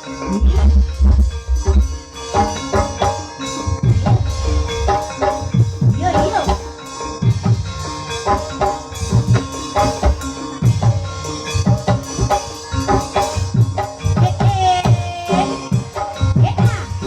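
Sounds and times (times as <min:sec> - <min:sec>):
wavering held melodic note: 0:00.0 - 0:10.5
drums in a driving rhythm: 0:00.0 - 0:17.0
ringing pitched percussion: 0:00.0 - 0:17.0.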